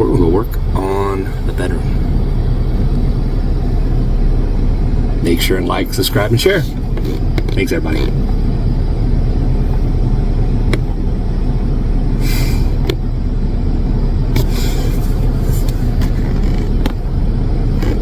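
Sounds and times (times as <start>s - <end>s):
vehicle engine rumbling: 0.0s - 18.0s
short hissing bursts: 12.2s - 12.8s.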